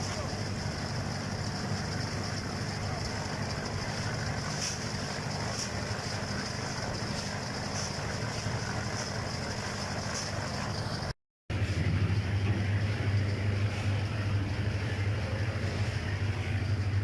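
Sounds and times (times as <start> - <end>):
engine running with high whine: 0.0 - 17.0.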